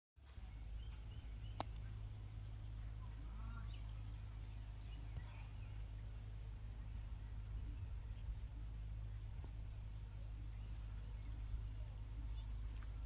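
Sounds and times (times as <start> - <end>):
steady low hum: 0.2 - 13.0
faint bird chirps: 3.0 - 9.4, 10.1 - 13.0.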